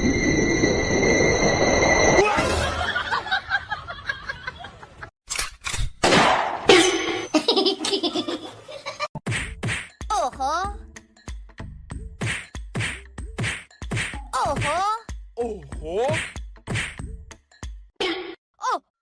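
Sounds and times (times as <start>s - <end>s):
laughter in pulses: 2.3s - 5.1s, 7.3s - 9.2s.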